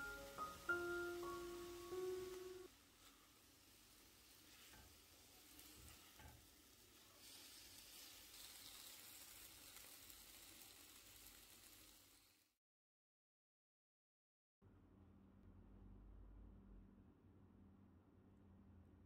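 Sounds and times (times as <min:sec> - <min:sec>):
vegetables sizzling in a pan: 0:00.0 - 0:12.6.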